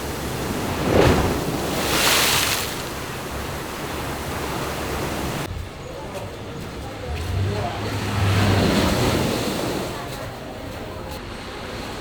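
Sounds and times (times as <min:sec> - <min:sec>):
wind and surf rushing: 0:00.0 - 0:05.5.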